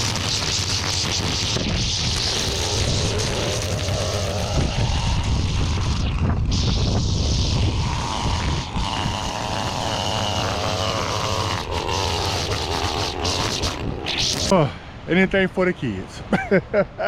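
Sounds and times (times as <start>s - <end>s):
small gasoline engine running: 7.4s - 13.8s.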